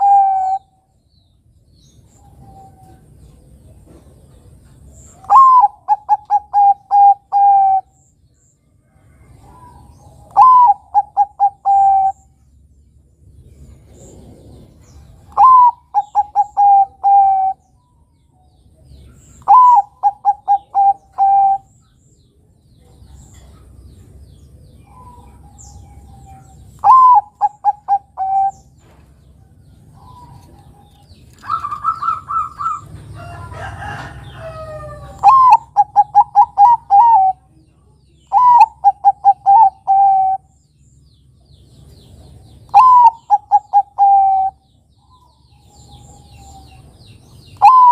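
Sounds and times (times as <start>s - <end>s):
dove cooing: 0.0s - 0.8s, 5.1s - 8.0s, 9.2s - 12.3s, 13.9s - 17.6s, 19.4s - 21.8s, 24.8s - 29.0s, 29.9s - 37.6s, 38.2s - 40.5s, 42.7s - 46.9s, 47.6s - 47.9s.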